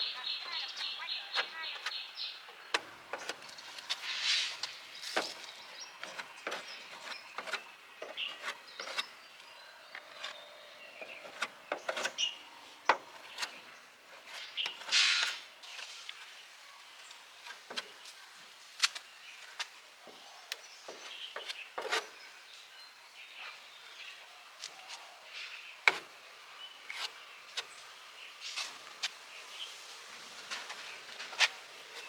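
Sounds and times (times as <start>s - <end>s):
scraping: 0.8s - 16.4s, 20.8s - 22.2s.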